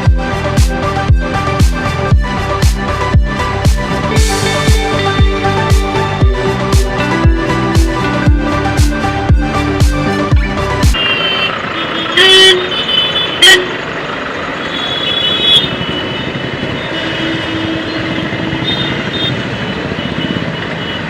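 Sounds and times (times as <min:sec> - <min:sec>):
music with thumping beat: 0:00.0 - 0:11.0
road traffic: 0:00.0 - 0:21.0
wind: 0:00.0 - 0:21.0
vehicle horns honking: 0:11.0 - 0:13.9, 0:14.6 - 0:21.0.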